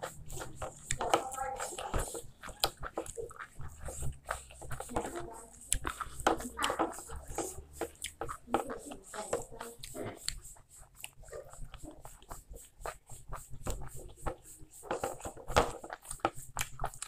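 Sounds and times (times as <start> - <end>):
wet chewing and lip smacks: 0.1 - 4.9, 5.5 - 8.4, 9.8 - 14.5, 15.9 - 17.0.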